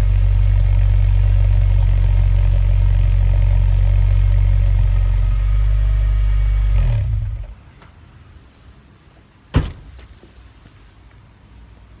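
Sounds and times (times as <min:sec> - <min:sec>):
car engine idling: 0:00.0 - 0:06.2
keys jingling: 0:08.1 - 0:10.8.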